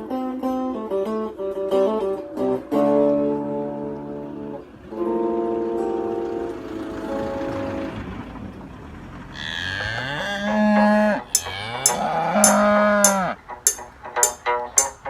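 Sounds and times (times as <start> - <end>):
cow mooing: 9.3 - 13.4
music with steady beat: 11.4 - 15.0.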